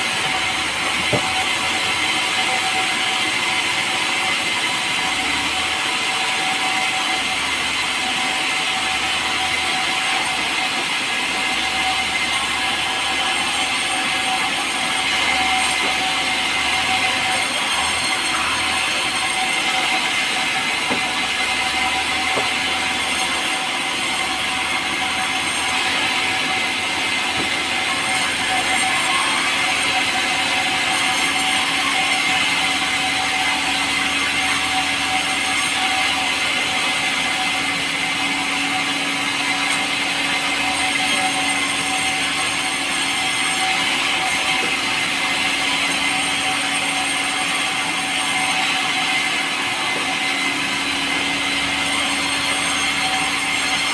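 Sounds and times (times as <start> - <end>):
power saw cutting log: 0.0 - 53.9.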